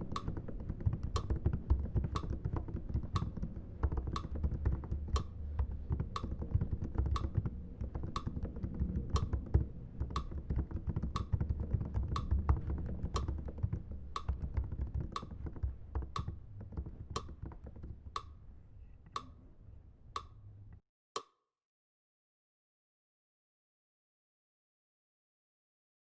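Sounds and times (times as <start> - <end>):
sharp tick: 0.0 - 5.4, 6.1 - 16.4, 17.2 - 17.5, 20.2 - 20.4
fingers typing on keyboard: 0.0 - 18.2.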